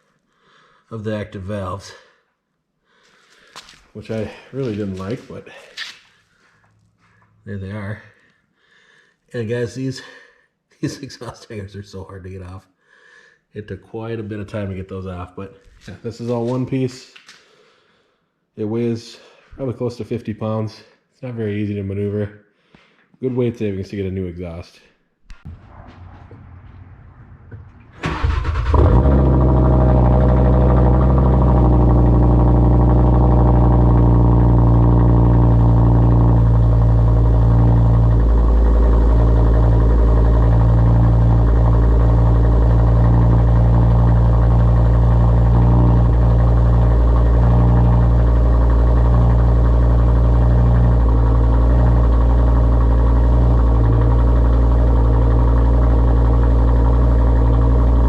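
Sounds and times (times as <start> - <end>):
car engine idling: 27.5 - 58.0.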